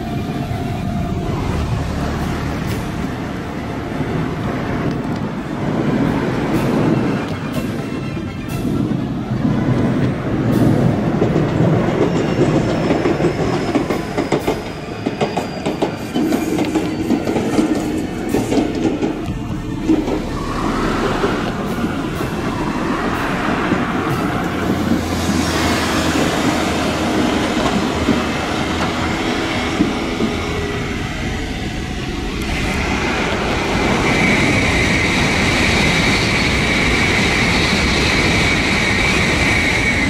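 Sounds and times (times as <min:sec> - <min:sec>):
high-speed train rushing past: 0:00.0 - 0:40.0
train wheels clicking over rail joints: 0:09.8 - 0:30.4
steady high whine: 0:18.0 - 0:26.0.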